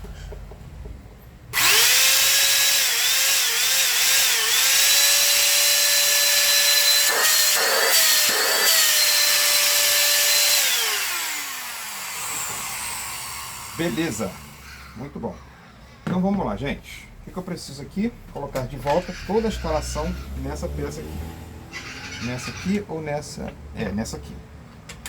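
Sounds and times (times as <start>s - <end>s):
handheld vacuum cleaner motor whine: 1.6s - 14.9s.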